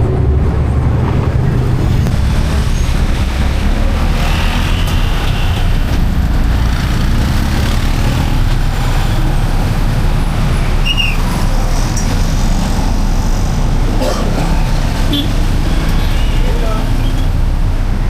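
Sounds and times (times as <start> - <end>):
loud low rumble: 0.0 - 10.8.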